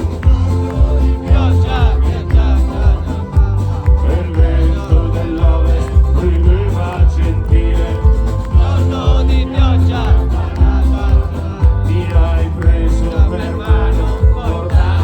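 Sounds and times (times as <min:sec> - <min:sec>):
folk-rock band music: 0:00.0 - 0:15.0.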